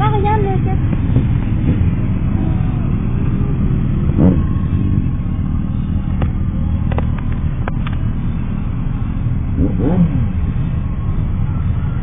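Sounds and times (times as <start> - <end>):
motorcycle engine and road noise: 0.0 - 12.0.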